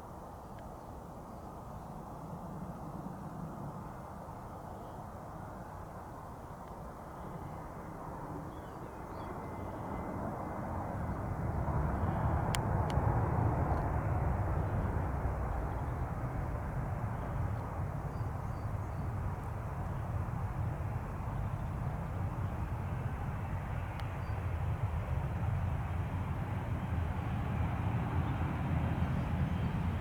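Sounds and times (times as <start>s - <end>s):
jet engines rumbling: 7.1s - 30.0s.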